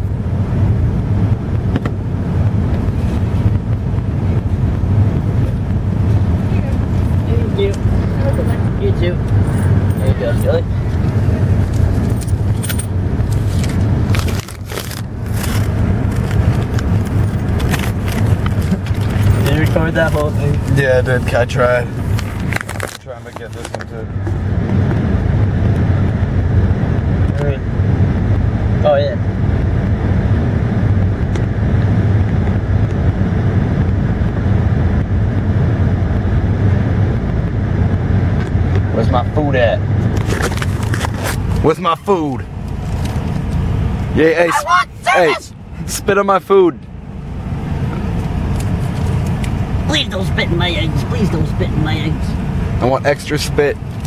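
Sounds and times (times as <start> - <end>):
car engine idling: 0.0 - 24.6, 38.4 - 54.0.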